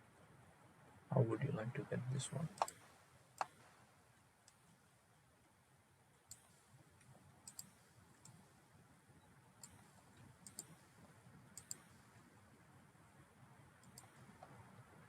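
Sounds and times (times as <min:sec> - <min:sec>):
faint low room hum: 0:00.0 - 0:15.0
computer mouse buttons clicking: 0:02.5 - 0:02.8, 0:03.4 - 0:03.6, 0:06.3 - 0:06.6, 0:07.4 - 0:08.4, 0:09.6 - 0:10.9, 0:11.6 - 0:12.0, 0:13.8 - 0:14.6.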